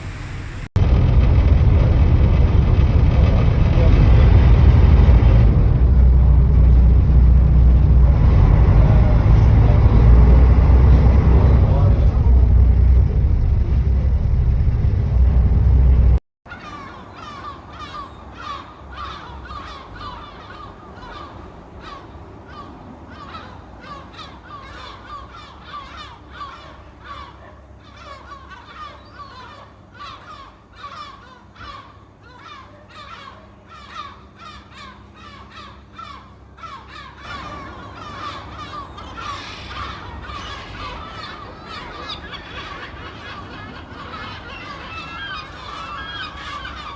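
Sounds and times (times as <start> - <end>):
loud low rumble: 0.0 - 16.2
seagulls squawking: 3.2 - 46.9.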